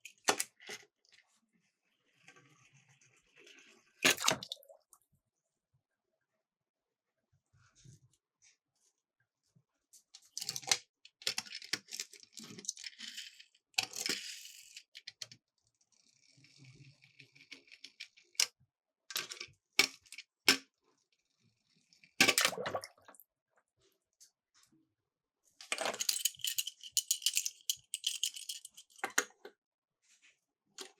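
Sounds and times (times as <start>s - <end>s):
toy cars rattling on plastic track: 25.7s - 29.2s.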